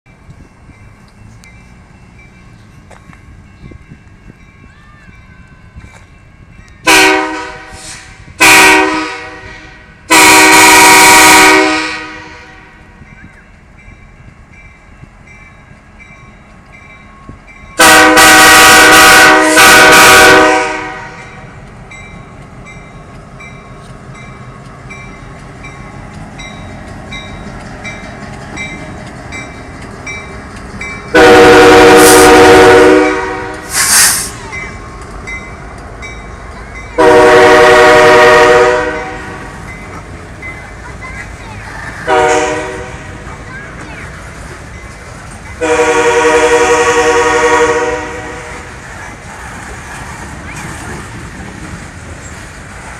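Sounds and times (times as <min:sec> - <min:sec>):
passing train rumble: 0:00.1 - 0:52.9
train air horn blasts: 0:06.8 - 0:12.8, 0:17.8 - 0:21.4, 0:31.1 - 0:34.4, 0:37.0 - 0:39.6, 0:42.0 - 0:43.2, 0:45.6 - 0:48.7.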